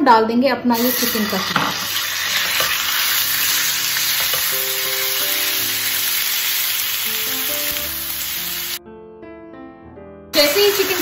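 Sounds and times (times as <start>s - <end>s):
spatula stirring: 0.8s - 5.2s
meat sizzling in a frying pan: 0.8s - 8.8s, 10.4s - 11.0s.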